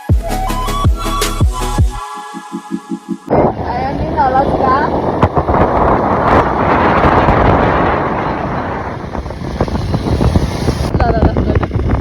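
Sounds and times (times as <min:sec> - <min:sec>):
wind buffeting the microphone: 0:03.3 - 0:12.0.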